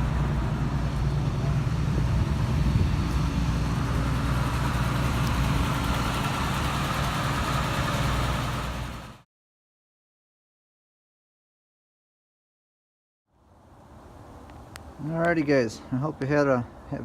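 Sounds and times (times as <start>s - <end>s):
pickup engine idling: 0.0s - 9.2s.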